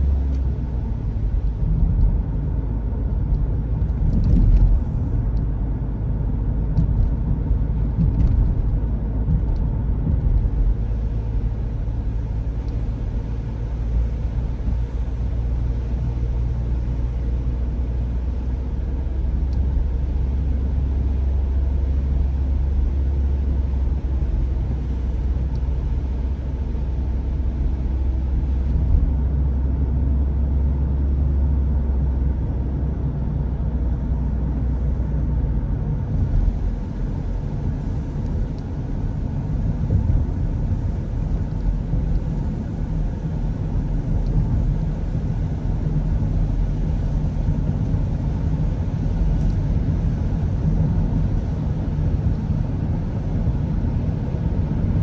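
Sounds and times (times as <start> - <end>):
engine and tyres rumbling: 0.0 - 55.0.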